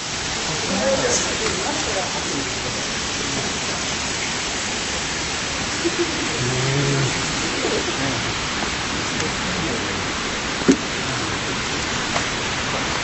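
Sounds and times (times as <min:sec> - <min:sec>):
running water rushing: 0:00.0 - 0:13.0
low voice: 0:00.5 - 0:03.8, 0:05.9 - 0:10.2, 0:11.0 - 0:12.1.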